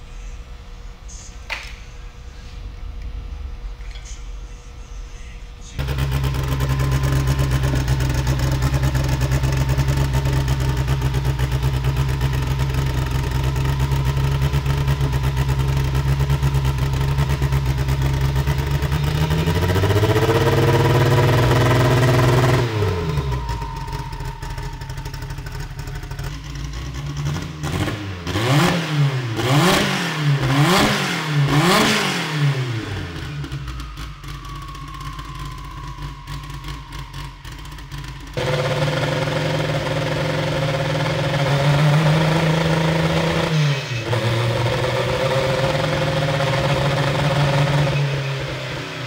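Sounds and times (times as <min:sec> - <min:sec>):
car engine idling and revving: 0:05.8 - 0:49.0.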